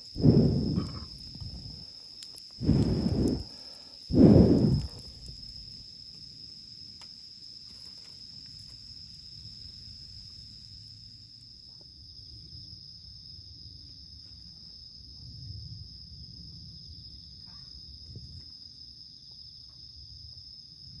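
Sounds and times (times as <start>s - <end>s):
insects chirping: 0.0s - 21.0s
low rumble: 0.2s - 1.8s, 2.6s - 3.5s, 4.1s - 5.5s.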